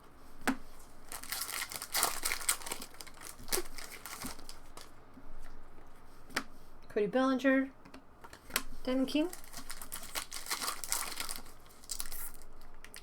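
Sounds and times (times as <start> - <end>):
wrapper crinkling and tearing: 1.0 - 4.9, 9.2 - 13.0.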